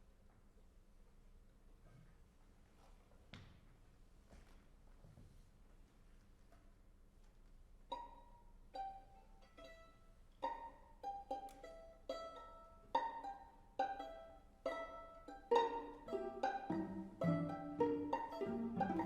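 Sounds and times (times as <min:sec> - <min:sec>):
string quartet playing pizzicato: 0:07.9 - 0:19.0.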